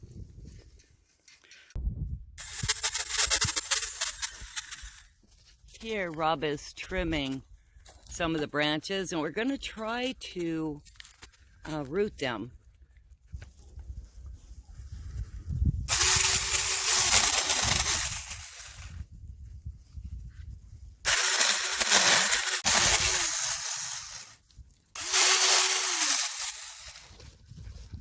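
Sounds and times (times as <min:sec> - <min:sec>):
electric chainsaw cutting branches: 0:02.4 - 0:05.2, 0:15.9 - 0:18.9, 0:21.1 - 0:24.4, 0:25.0 - 0:27.2.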